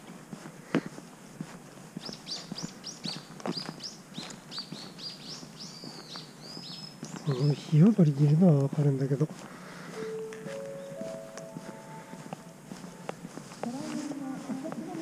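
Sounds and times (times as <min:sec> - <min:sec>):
footsteps on path: 0:00.0 - 0:15.0
bird chirping rapidly: 0:02.0 - 0:07.8.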